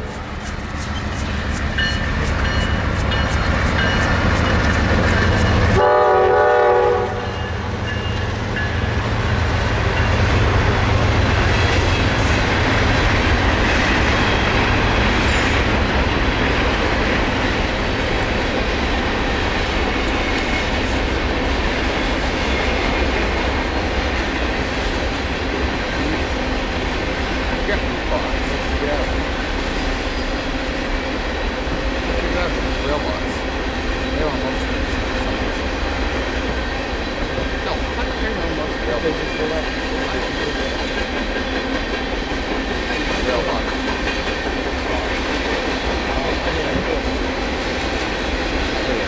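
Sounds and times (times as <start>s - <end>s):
train wheels clattering on rails: 0.0s - 49.0s
locomotive horn blast: 5.7s - 7.6s.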